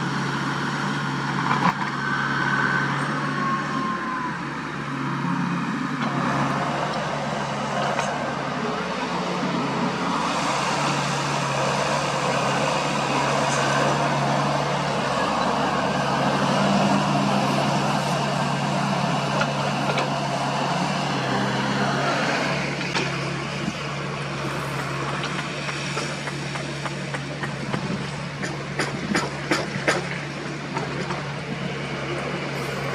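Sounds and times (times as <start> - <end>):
diesel engine running: 0.0 - 32.9
loud rushing noise: 5.1 - 26.3.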